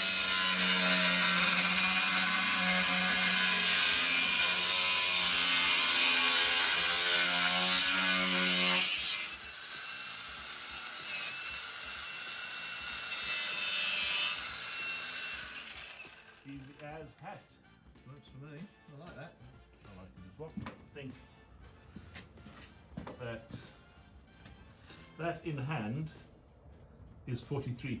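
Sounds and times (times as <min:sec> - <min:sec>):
angle grinder cutting steel: 0:00.0 - 0:16.9.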